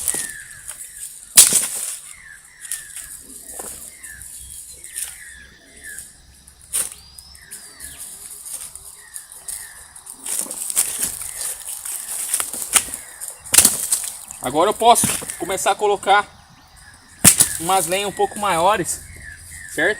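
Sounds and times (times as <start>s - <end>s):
campfire cracking and popping: 8.9s - 15.5s.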